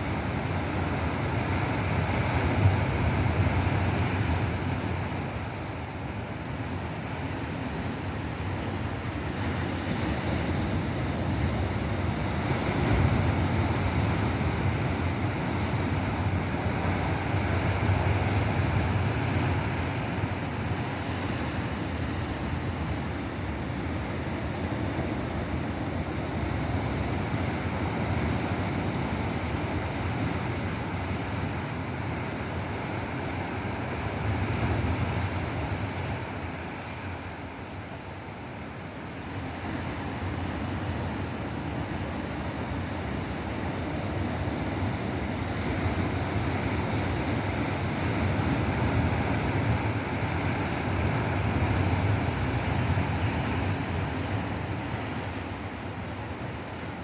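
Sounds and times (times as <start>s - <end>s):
ocean surf breaking: 9.6s - 22.5s, 43.9s - 57.0s.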